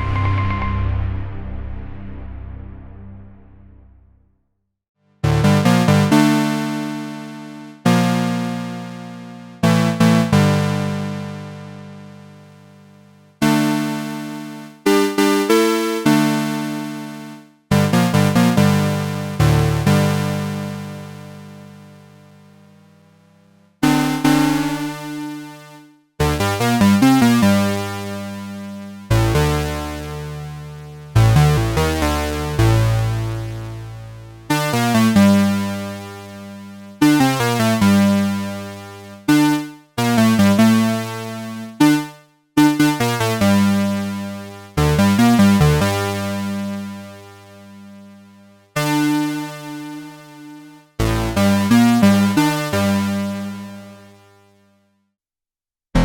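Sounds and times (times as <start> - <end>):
buzzy synthesizer notes and chords: 0.0 - 4.0, 23.8 - 25.8.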